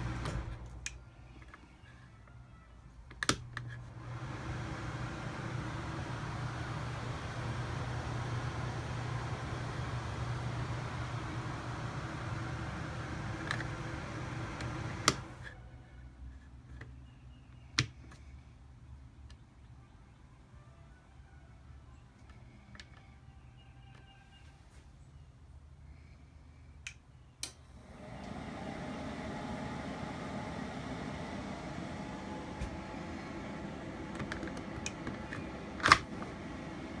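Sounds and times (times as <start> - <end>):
air conditioner air rushing: 0.0 - 0.9, 3.4 - 15.6, 27.5 - 37.0.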